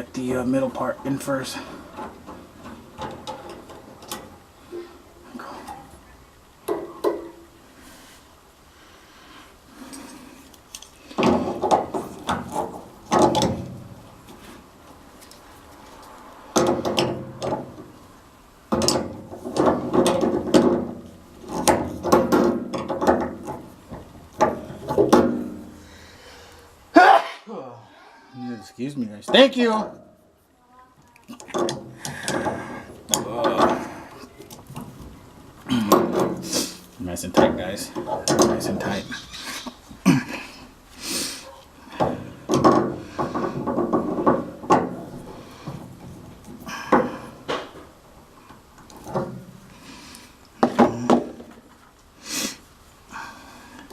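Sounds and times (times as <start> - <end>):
metal parts and tools clanking: 1.1 - 4.9, 18.7 - 25.6, 31.3 - 39.8.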